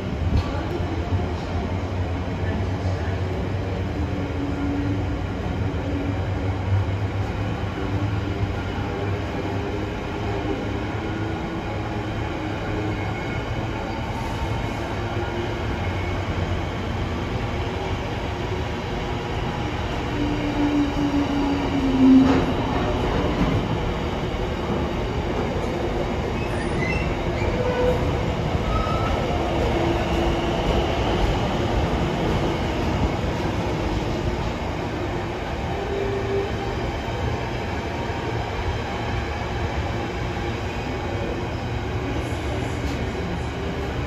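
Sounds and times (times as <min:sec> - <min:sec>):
train wheels rumbling and clattering: 0:13.4 - 0:44.0.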